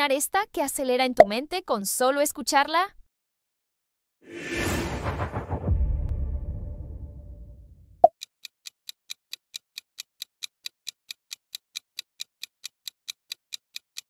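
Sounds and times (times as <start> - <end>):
low rumble: 4.3 - 8.0.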